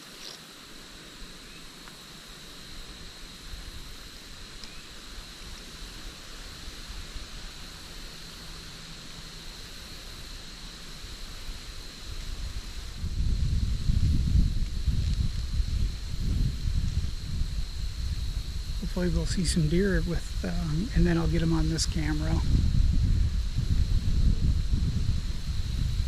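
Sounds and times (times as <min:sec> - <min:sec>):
steady hiss: 0:00.0 - 0:26.0
wind rumbling on microphone: 0:02.6 - 0:26.0
faint high steady tone: 0:15.7 - 0:23.2.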